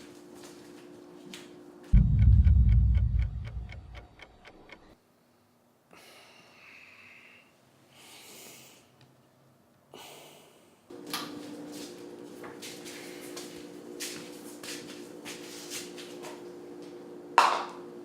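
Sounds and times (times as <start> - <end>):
low rumble: 2.0 - 4.9
steady ticking: 2.0 - 5.0.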